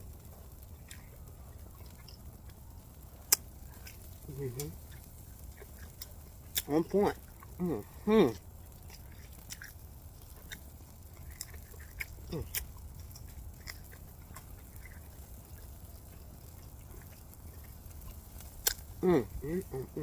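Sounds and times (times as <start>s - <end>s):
chewing clicks and smacks: 0.6s - 7.6s, 8.7s - 19.0s
person humming mm: 19.0s - 20.0s.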